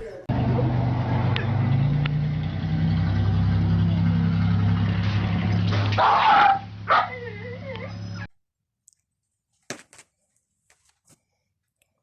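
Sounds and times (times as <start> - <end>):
low engine hum: 0.3 - 8.3
dog sharp cry: 5.9 - 8.0
dog whining: 6.0 - 8.3.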